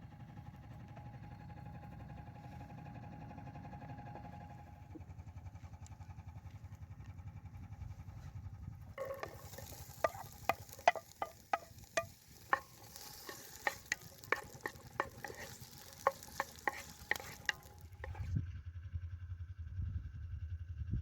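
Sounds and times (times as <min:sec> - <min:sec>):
utensil knocking against frying pan: 0:09.0 - 0:18.2
faint sizzle: 0:09.0 - 0:18.3.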